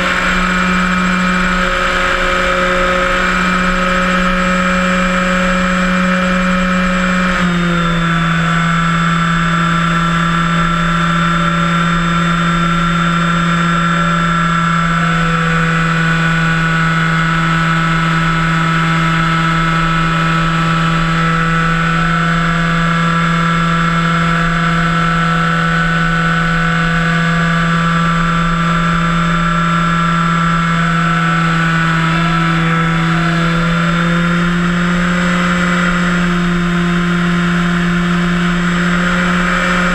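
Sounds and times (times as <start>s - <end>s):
model plane electric motor buzzing: 0.0s - 39.9s.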